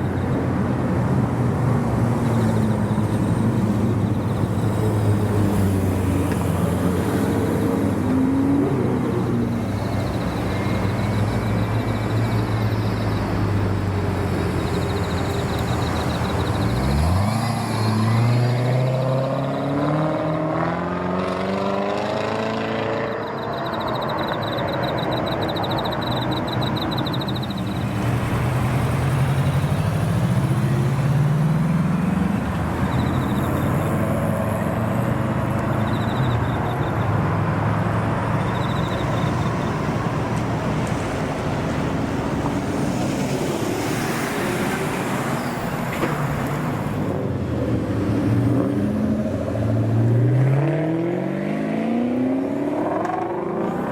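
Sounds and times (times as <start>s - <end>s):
car engines running: 0.0s - 53.9s
car accelerating away: 13.3s - 27.3s, 48.0s - 53.9s.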